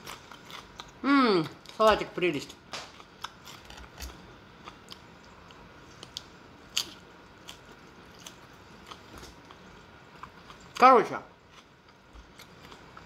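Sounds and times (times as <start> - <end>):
person chewing salad: 0.0 - 13.0.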